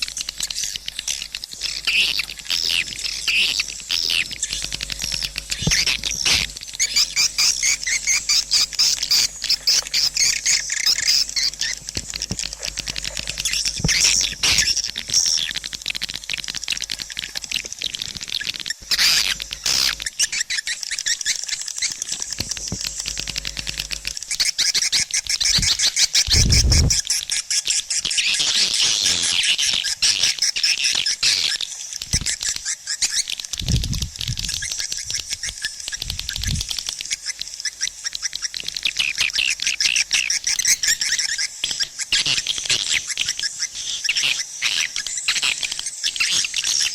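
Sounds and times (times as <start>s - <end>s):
rapid high bird chirps: 0.2s - 26.7s.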